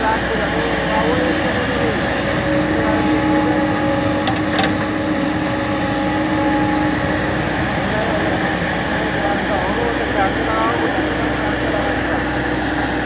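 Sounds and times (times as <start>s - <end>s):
diesel engine and hydraulics humming: 0.0s - 13.0s.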